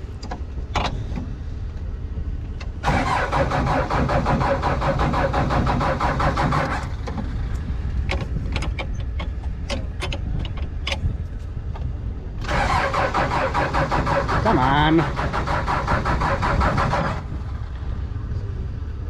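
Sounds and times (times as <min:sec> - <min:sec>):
steady low rumble: 0:00.0 - 0:19.0
starter motor cranking engine: 0:02.8 - 0:07.0, 0:12.4 - 0:17.3.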